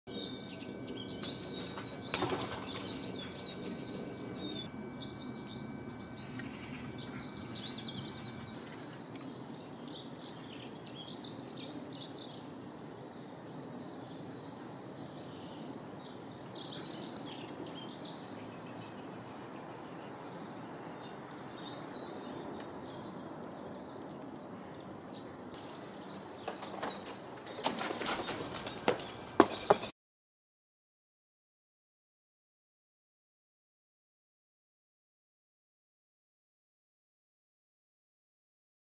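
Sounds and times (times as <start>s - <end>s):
songbirds chirping: 0.1s - 29.9s.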